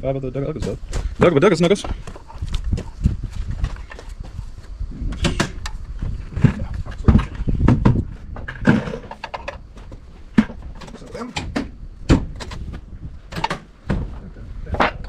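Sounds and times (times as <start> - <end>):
tools knocking and clunking: 6.4 - 14.1.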